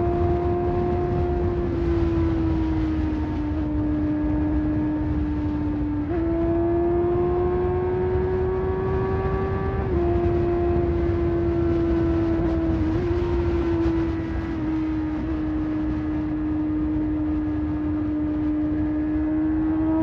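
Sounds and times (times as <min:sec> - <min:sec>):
motorcycle engine running: 0:00.0 - 0:20.0
wind and road noise: 0:00.0 - 0:20.0.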